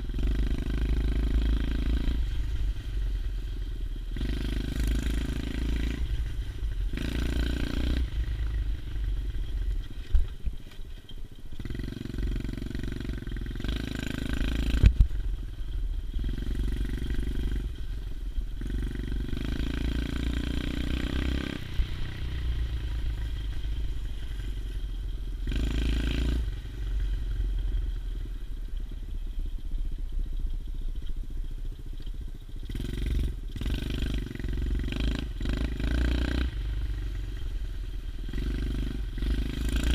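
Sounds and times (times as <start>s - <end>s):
motorbike engine revving: 0.0s - 10.1s, 11.5s - 15.4s, 16.0s - 28.3s, 32.5s - 39.9s.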